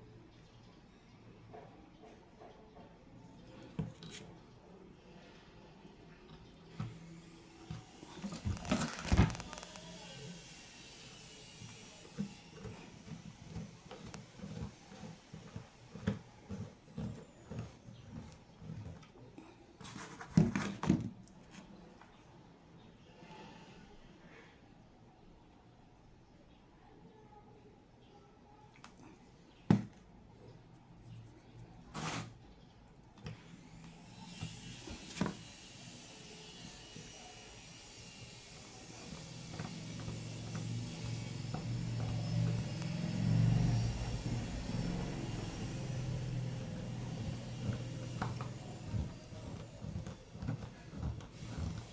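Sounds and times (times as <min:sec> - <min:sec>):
small electric motor running: 0:06.8 - 0:18.9, 0:33.5 - 0:51.9
short scuff: 0:31.9 - 0:32.4.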